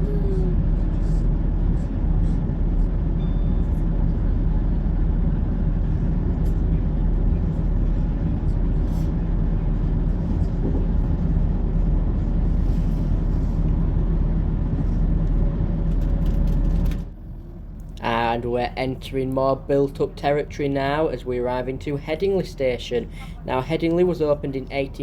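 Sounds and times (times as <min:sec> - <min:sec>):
train diesel engine rumble: 0:00.0 - 0:25.0.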